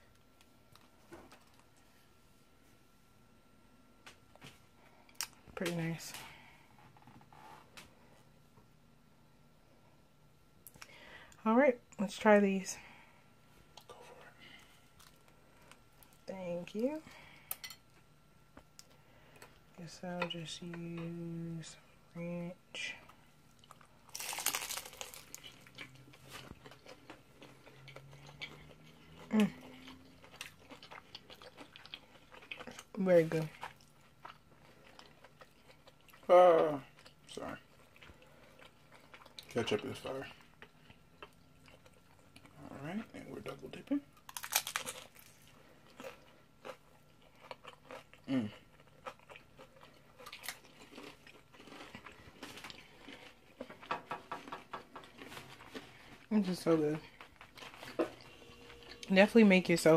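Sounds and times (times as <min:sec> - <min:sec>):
crunchy bite and chewing: 0:23.5 - 0:32.9, 0:44.2 - 0:53.7.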